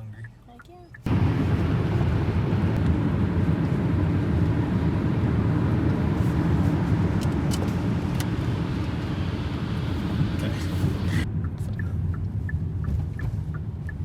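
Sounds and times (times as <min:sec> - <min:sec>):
car driving on road: 0:00.0 - 0:14.0.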